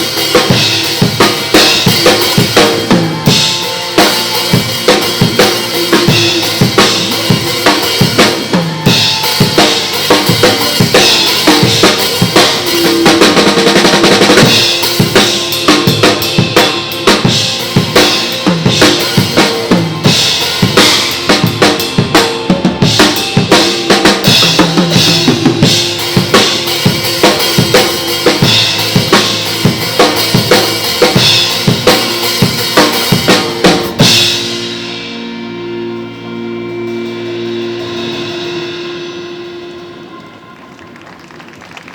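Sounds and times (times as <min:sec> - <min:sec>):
pop backing track: 0:00.0 - 0:40.4
acoustic drum kit playing: 0:00.0 - 0:41.9.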